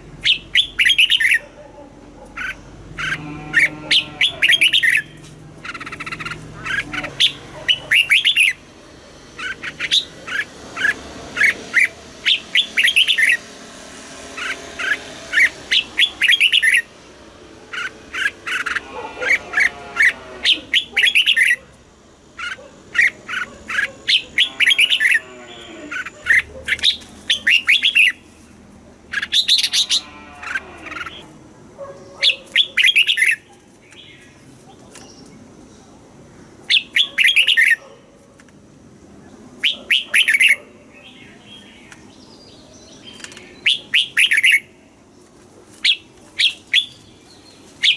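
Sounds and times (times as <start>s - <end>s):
bird song whistled chirps: 0.2s - 1.4s.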